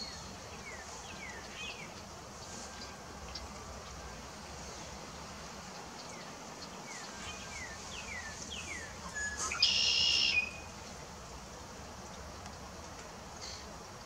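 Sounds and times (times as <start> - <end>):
bird whistling short notes: 9.1 - 10.6.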